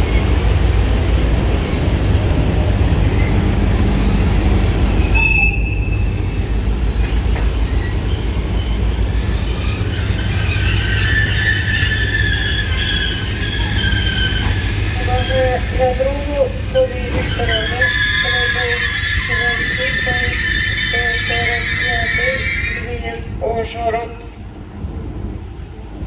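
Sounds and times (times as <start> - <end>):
train wheels squealing: 0.0 - 1.9, 3.1 - 6.5, 7.6 - 23.2
train wheels rumbling on rails: 0.0 - 26.0.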